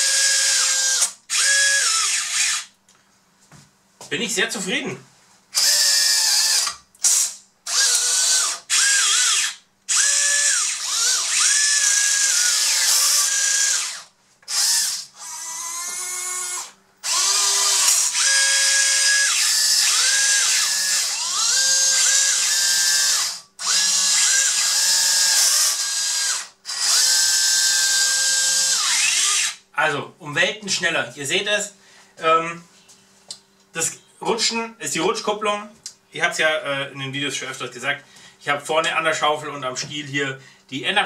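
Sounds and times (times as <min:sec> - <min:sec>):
small electric motors whining: 0:00.0 - 0:02.7, 0:05.6 - 0:29.6.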